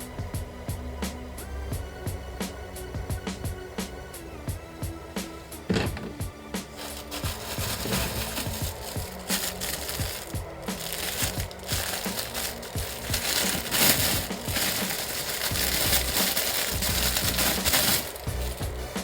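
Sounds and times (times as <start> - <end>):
background music: 0.0 - 19.0
plastic packaging crinkling: 6.7 - 19.0.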